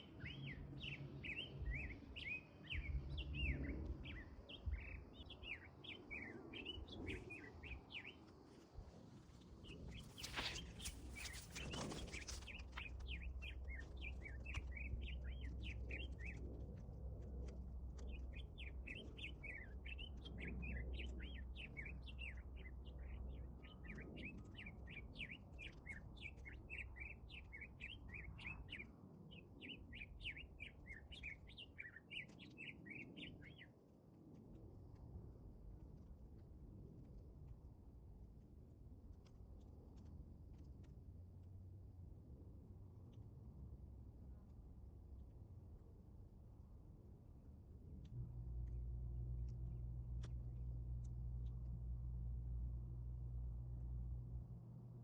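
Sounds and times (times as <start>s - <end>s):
small birds chirping: 9.6s - 16.4s, 17.4s - 33.7s
low rumble: 47.8s - 55.0s.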